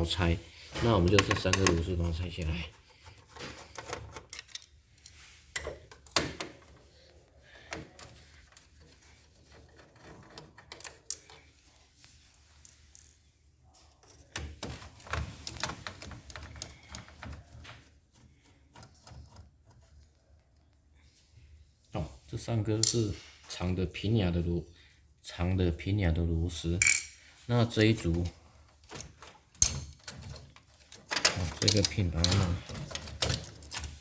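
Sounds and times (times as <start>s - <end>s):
screwdriver clicks and metallic taps: 3.8s - 6.6s.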